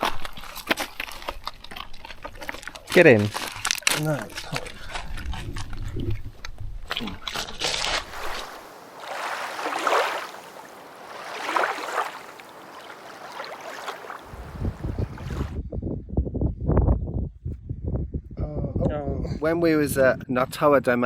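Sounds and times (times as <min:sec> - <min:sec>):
wind buffeting microphone: 0:04.6 - 0:21.0
lake water splashing: 0:07.6 - 0:15.6.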